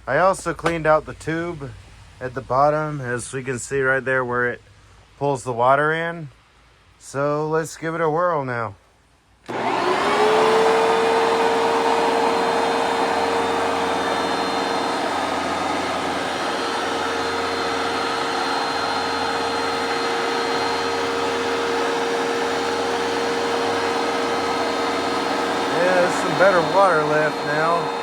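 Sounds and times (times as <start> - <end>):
carpet cleaner motor whine: 9.5 - 28.0
suction rushing: 9.5 - 28.0.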